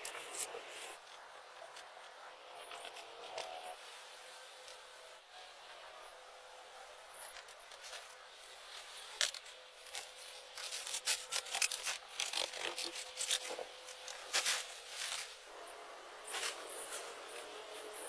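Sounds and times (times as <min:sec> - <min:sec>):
materials rubbing and crackling: 0:07.2 - 0:15.5.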